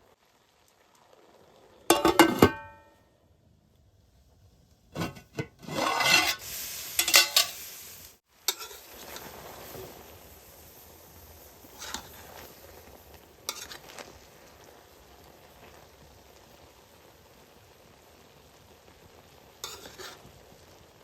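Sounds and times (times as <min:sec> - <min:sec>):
food sizzling: 0:00.0 - 0:03.0, 0:04.6 - 0:21.0
spoon scraping in a pan: 0:01.9 - 0:02.8, 0:05.0 - 0:07.8, 0:08.4 - 0:10.0, 0:11.6 - 0:12.7, 0:13.4 - 0:14.2, 0:19.6 - 0:20.3
metal cookware clanking: 0:01.9 - 0:02.9, 0:05.0 - 0:07.6, 0:08.5 - 0:08.8, 0:19.6 - 0:20.2.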